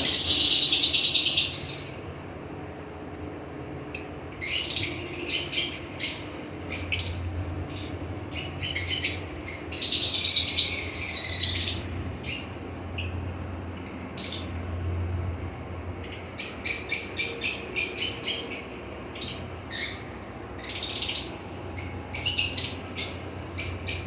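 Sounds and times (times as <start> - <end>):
parrots chattering: 0.0 - 2.0, 4.0 - 13.2, 16.0 - 24.0
parrots squawking and chirping: 0.0 - 2.0, 4.0 - 13.2, 16.0 - 24.0.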